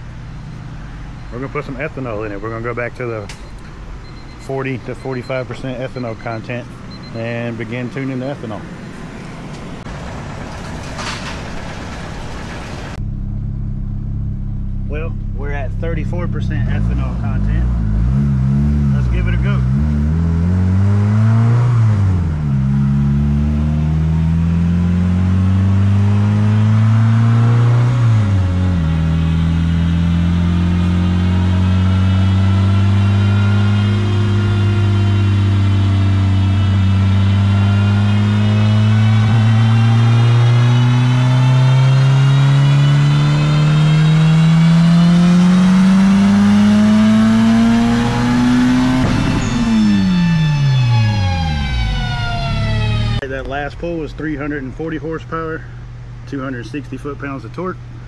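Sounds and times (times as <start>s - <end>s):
turbocharged engine revving: 4.0s - 53.2s.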